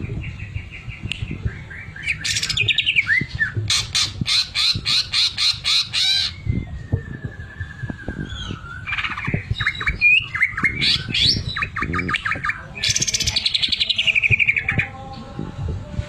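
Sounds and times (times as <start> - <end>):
bird singing varied whistles: 5.2 - 13.2.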